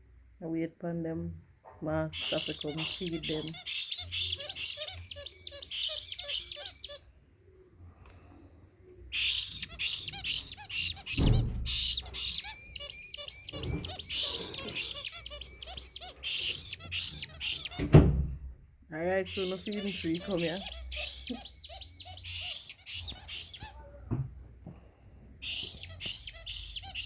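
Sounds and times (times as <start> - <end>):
parrot chicks begging calls: 2.1 - 7.1, 9.1 - 18.0, 19.0 - 23.8, 25.4 - 27.0.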